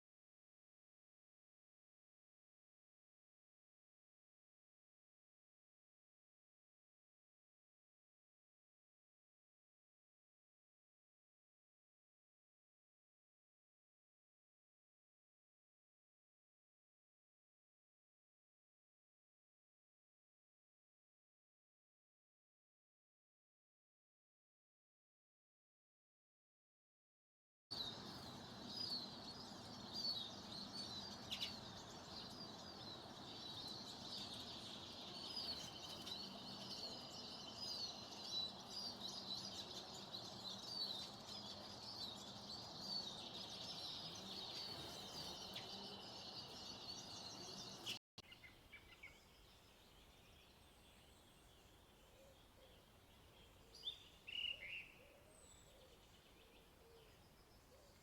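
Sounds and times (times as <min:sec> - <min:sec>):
small birds chirping: 0:27.7 - 0:58.0.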